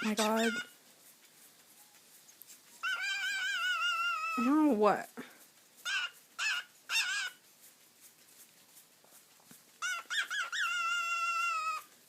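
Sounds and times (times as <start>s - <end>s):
cockatiel chirping and whistling: 2.8s - 4.4s, 5.8s - 7.3s, 9.8s - 11.8s.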